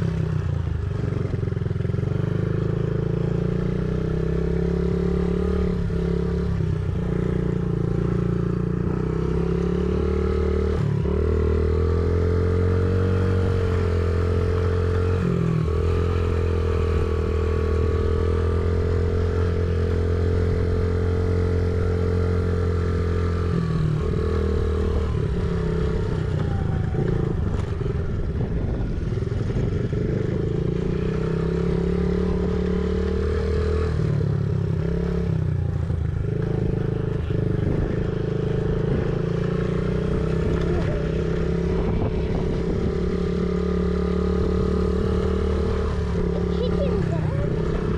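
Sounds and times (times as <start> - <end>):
dirt bike engine revving: 36.3 - 47.9.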